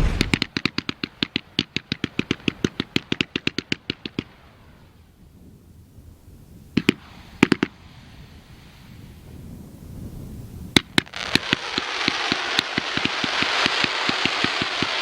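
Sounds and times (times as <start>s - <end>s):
firework rapid cracks: 0.0s - 4.3s, 10.8s - 15.0s.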